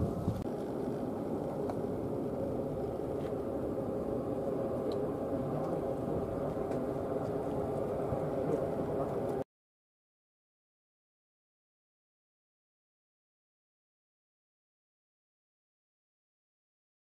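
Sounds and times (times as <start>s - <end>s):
aircraft engines rumbling: 0.0s - 9.4s.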